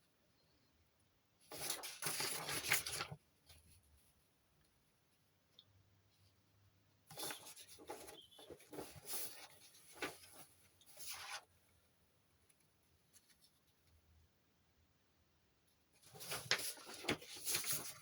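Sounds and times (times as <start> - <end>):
handling noise rustling and scraping: 7.1 - 11.5, 16.0 - 18.0.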